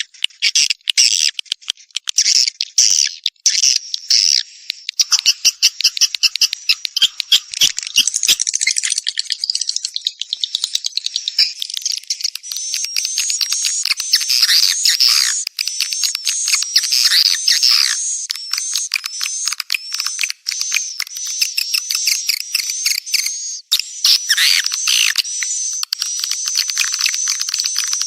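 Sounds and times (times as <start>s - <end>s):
swiftlet chirping calls: 5.0s - 8.8s, 11.1s - 28.0s.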